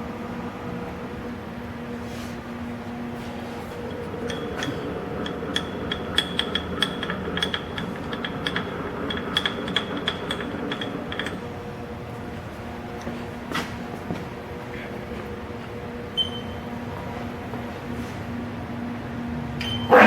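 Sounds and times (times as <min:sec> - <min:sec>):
lathe machine hum: 0:00.0 - 0:20.0
mechanical clicking and rattling: 0:03.6 - 0:14.3.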